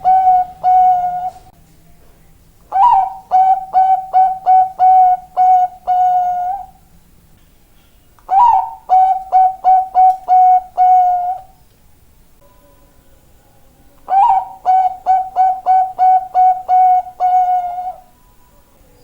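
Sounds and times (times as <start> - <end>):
dove cooing: 0.0 - 1.5, 2.7 - 6.8, 8.3 - 11.6, 14.1 - 18.1.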